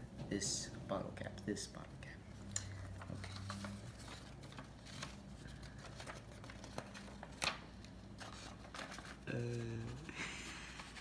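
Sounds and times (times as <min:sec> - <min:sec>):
paper rustling: 0:02.9 - 0:11.0.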